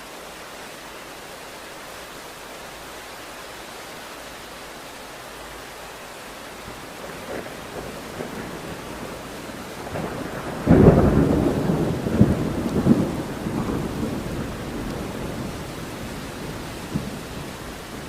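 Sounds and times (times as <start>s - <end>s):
steady rain: 0.0s - 18.0s
thunder rumbling: 6.7s - 18.0s.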